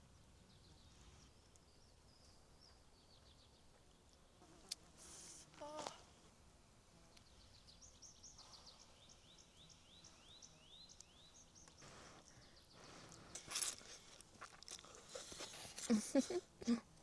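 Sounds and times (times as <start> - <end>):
small bird chirping: 7.2 - 14.2.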